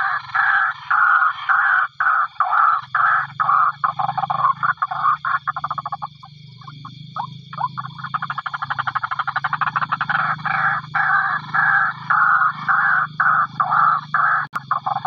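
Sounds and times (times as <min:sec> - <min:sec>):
waterhen calling harsh notes: 0:00.0 - 0:06.1, 0:09.1 - 0:15.0.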